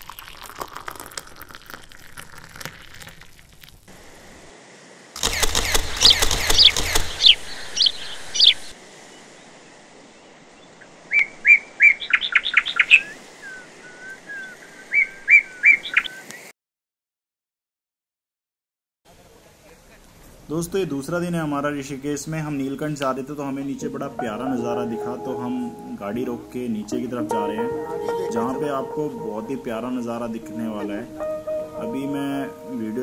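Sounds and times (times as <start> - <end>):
steady hiss: 0.1 - 16.5, 19.1 - 33.0
birds chirping: 5.2 - 16.5, 20.7 - 33.0.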